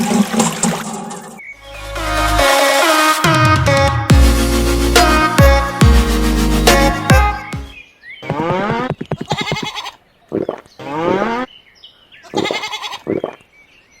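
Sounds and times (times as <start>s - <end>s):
livestock bleating: 8.3s - 10.0s, 12.2s - 13.2s.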